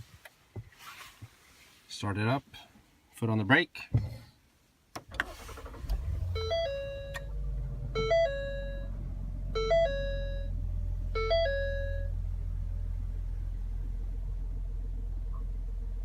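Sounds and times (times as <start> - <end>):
car engine starting and idling: 5.0 - 16.0
three-note electronic warning chime: 8.0 - 8.9, 9.6 - 10.6, 11.2 - 12.1.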